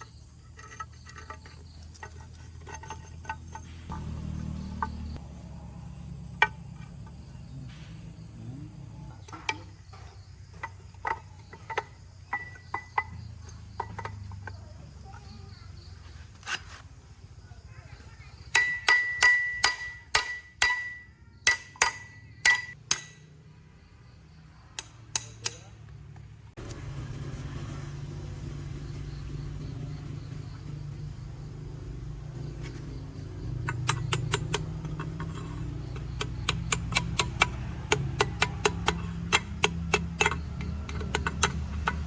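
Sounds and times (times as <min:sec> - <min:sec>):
hammer striking metal: 0:18.5 - 0:23.3.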